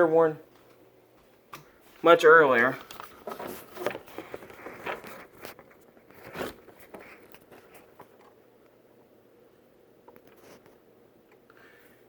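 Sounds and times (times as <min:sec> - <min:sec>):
faint room noise: 0:00.0 - 0:12.0
camera handling clicks and scrapes: 0:02.8 - 0:08.1.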